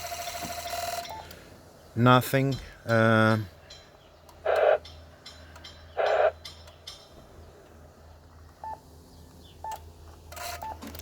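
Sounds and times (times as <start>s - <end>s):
radio hiss bursts: 4.4s - 4.8s, 6.0s - 6.4s.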